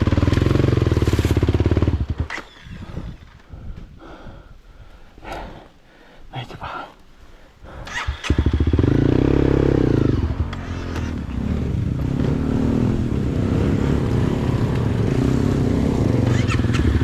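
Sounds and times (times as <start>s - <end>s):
motorcycle engine revving: 0.0s - 3.2s, 7.8s - 17.0s.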